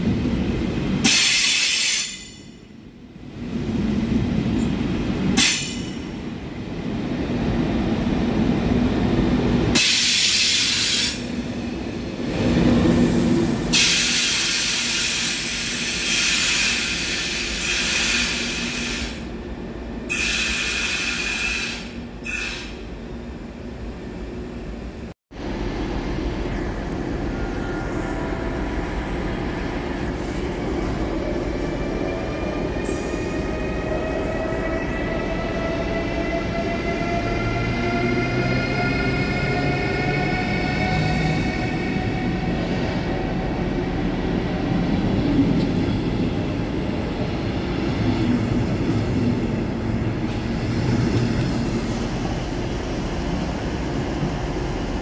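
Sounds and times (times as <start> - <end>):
train rumble with faint whine: 0.0 - 55.0
electric train passing: 22.8 - 55.0.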